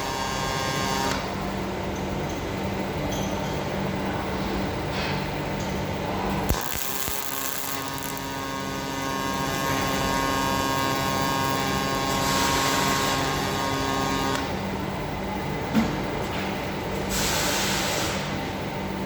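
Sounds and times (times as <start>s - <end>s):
welding arc buzzing hiss: 0.0s - 1.5s, 5.0s - 15.0s, 16.9s - 18.6s
welding arc striking click: 6.3s - 14.5s.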